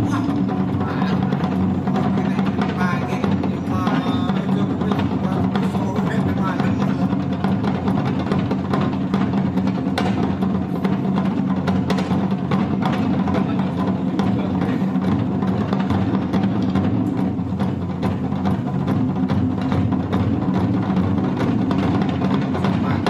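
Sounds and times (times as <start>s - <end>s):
traditional drum and percussion music: 0.0s - 23.0s.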